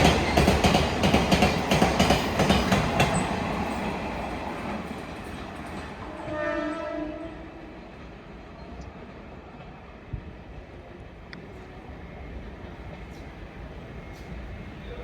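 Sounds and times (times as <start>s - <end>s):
freight train wheels clacking: 0.0s - 6.2s
train horn: 6.0s - 7.9s.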